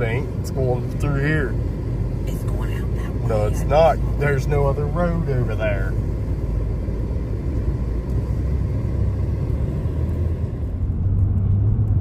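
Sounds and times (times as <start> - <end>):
car interior road noise: 0.0 - 12.0
low hum: 0.0 - 12.0.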